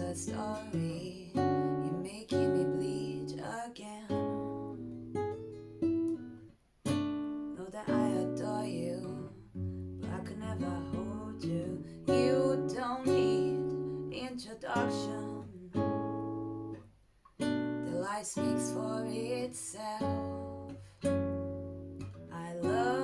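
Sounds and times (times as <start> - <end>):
acoustic guitar strumming chords: 4.1 - 23.0.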